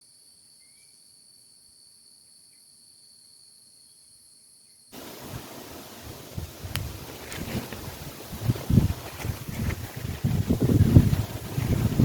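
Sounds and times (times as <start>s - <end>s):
crickets chirring: 0.1s - 12.0s
wind buffeting microphone: 5.0s - 12.0s.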